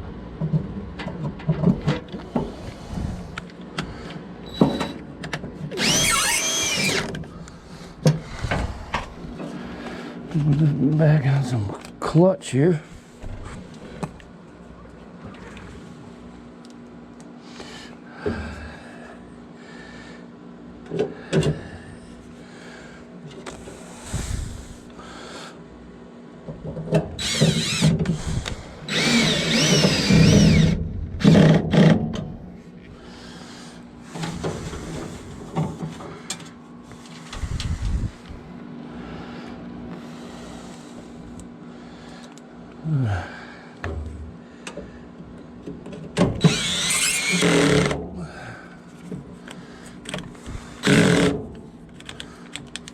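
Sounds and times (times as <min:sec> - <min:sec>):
steady low hum: 0:00.0 - 0:52.9
power drill driving screws: 0:05.8 - 0:07.2, 0:27.2 - 0:32.0, 0:46.4 - 0:48.0, 0:50.8 - 0:51.4.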